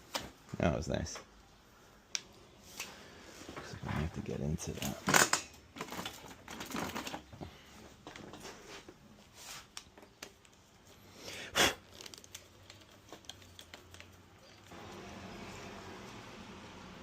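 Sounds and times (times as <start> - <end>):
light clicks and rustles: 11.9 - 14.7.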